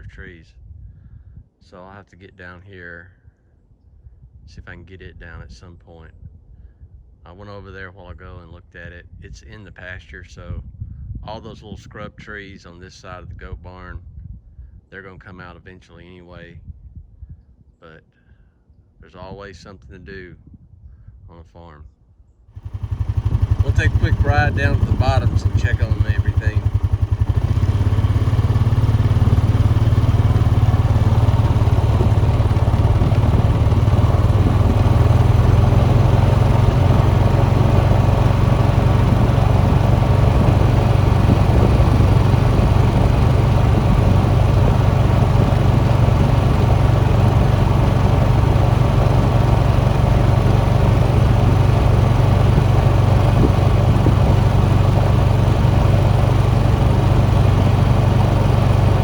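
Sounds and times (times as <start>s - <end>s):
atv engine droning: 22.6s - 59.0s.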